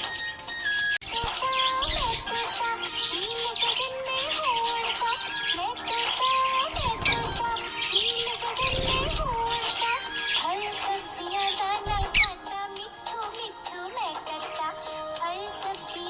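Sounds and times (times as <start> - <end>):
budgerigar chirping: 0.0 - 10.5, 11.9 - 12.4
slow background music: 0.0 - 16.0.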